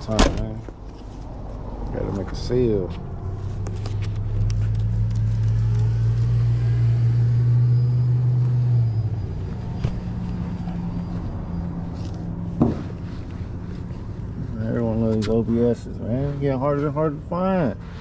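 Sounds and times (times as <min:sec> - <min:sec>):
car engine idling: 0:00.8 - 0:18.0.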